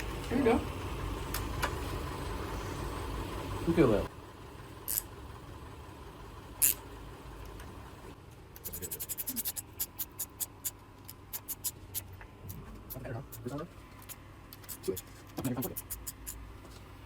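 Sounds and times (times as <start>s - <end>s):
ratchet wrench clicking: 4.9s - 5.1s, 6.6s - 6.8s, 8.6s - 12.1s, 13.3s - 16.4s.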